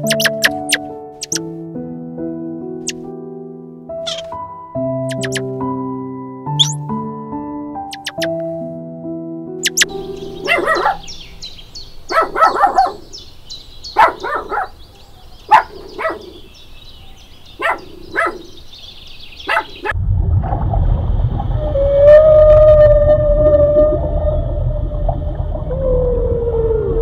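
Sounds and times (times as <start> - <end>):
fast high chirping: 0.0 - 1.4, 4.0 - 4.3, 5.0 - 5.5, 6.6 - 6.8, 7.9 - 8.4, 9.6 - 13.0
puppies yipping and barking: 0.0 - 1.4, 4.1 - 4.3, 5.1 - 5.5, 6.6 - 6.8, 7.9 - 8.3, 9.6 - 11.3, 12.1 - 13.2, 14.0 - 16.5, 17.6 - 18.5, 19.4 - 20.0
deep underwater rumble: 20.0 - 27.0
whale call: 21.5 - 27.0.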